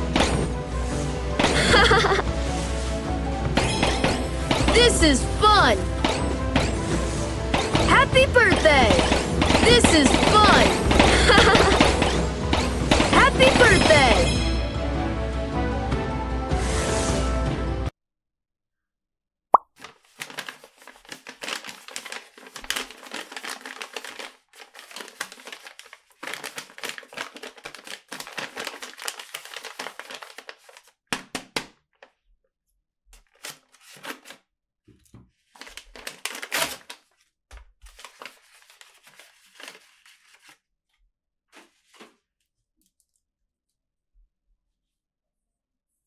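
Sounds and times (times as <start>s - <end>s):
packaging crinkling and tearing: 19.8s - 31.7s, 33.2s - 34.4s, 35.5s - 40.6s.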